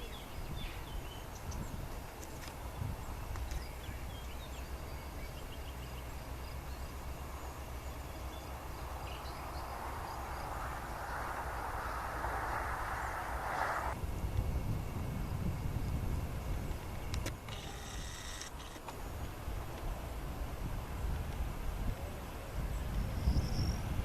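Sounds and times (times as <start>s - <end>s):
jet airliner rumble: 0.0s - 17.1s
rushing hiss: 8.0s - 14.0s.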